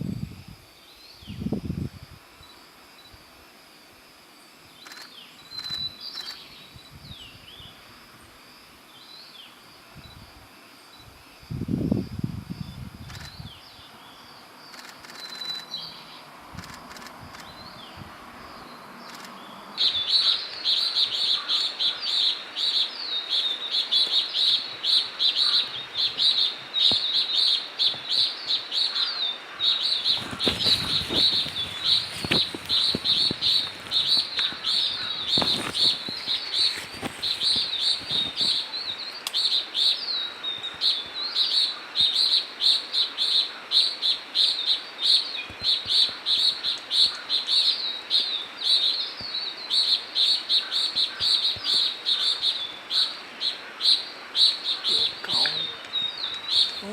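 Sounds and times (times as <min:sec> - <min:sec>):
bird chirping: 0:13.1 - 0:56.9.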